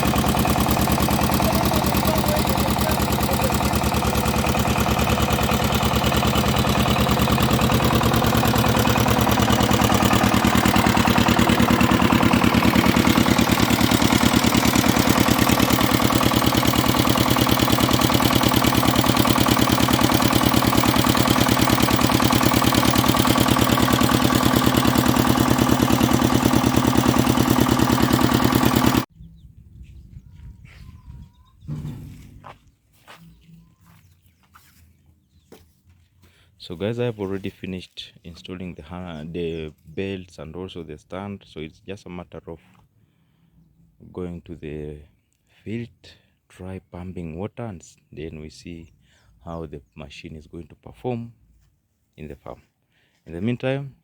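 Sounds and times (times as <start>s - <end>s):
diesel engine running: 0.0s - 29.1s.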